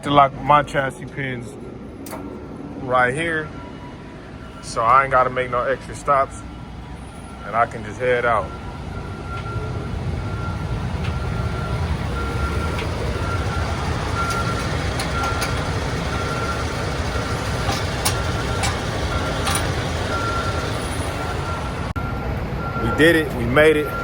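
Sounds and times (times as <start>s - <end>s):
diesel truck engine idling: 0.0s - 24.0s
reversing alarm beeping: 1.6s - 24.0s
metallic clicks and knocks: 12.7s - 16.1s, 17.1s - 19.9s.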